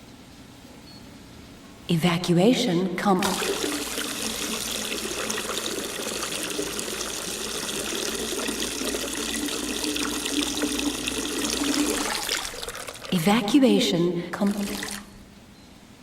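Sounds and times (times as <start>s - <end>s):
gasoline draining in a stream: 3.2s - 13.3s, 14.4s - 15.1s.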